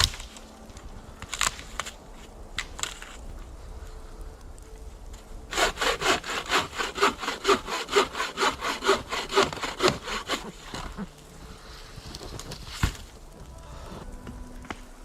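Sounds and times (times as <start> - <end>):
hand saw cutting wood: 5.5 - 11.1.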